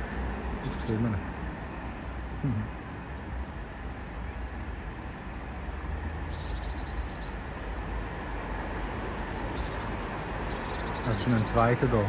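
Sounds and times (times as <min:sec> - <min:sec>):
songbird chirping and trilling: 0:00.0 - 0:01.3, 0:05.8 - 0:07.5, 0:09.0 - 0:12.0
outdoor background rumble: 0:00.0 - 0:12.0.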